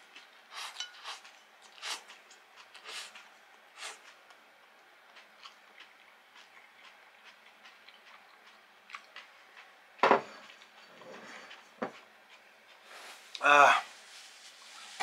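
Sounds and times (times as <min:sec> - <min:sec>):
person chewing crunchy food: 0:00.1 - 0:04.3, 0:05.0 - 0:09.8.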